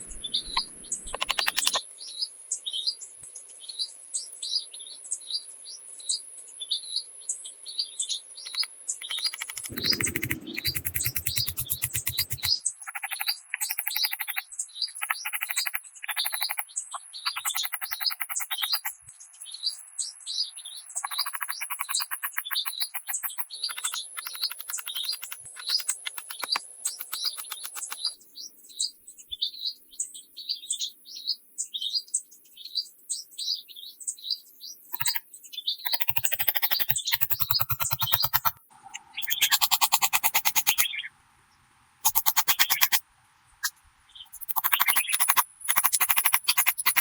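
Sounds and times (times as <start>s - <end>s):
birds chirping: 0.0s - 1.8s, 8.4s - 41.1s, 42.0s - 47.0s
rapid pulsing trill: 9.6s - 12.5s.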